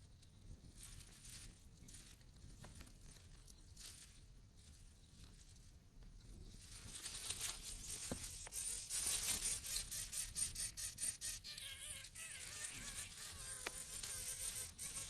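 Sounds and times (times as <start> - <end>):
wavering buzz: 8.4 - 15.0.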